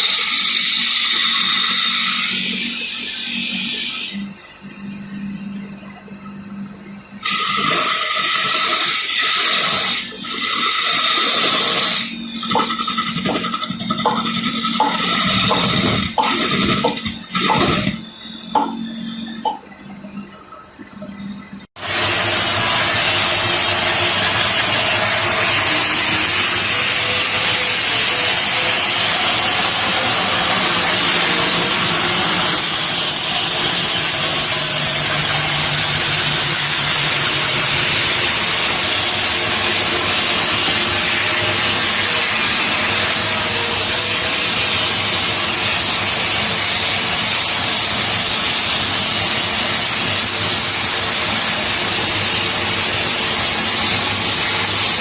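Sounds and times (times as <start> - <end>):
low buzzing tone: 2.4 - 47.2
low machine hum: 10.0 - 42.4.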